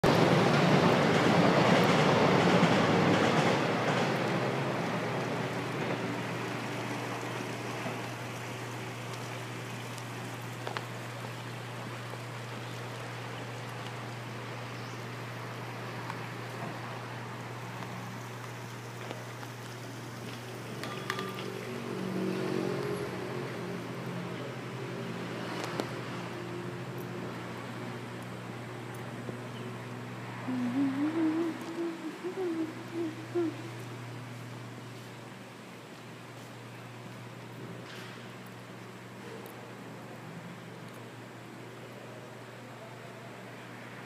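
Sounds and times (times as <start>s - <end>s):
electric train rushing: 0.1s - 6.5s
steady low hum: 23.0s - 37.9s.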